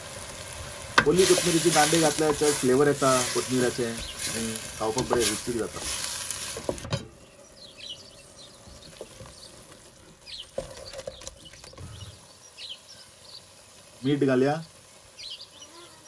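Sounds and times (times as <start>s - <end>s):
masala sizzling in hot oil: 0.0s - 16.0s
wooden spatula stirring: 1.0s - 7.0s
faint bird chirps: 7.2s - 14.0s, 14.6s - 16.0s.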